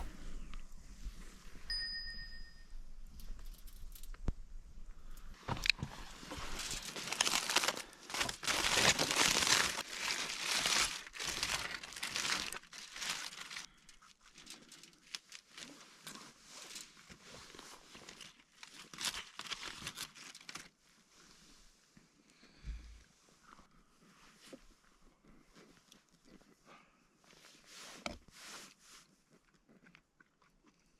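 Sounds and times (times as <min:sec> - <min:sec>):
crinkling and rustling: 0:03.1 - 0:22.1.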